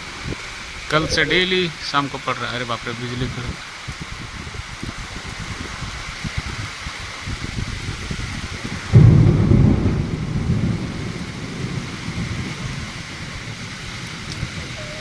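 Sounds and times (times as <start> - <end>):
steady rain: 0.0 - 15.0
wind: 0.0 - 15.0
thunderclap rumbling: 7.2 - 15.0.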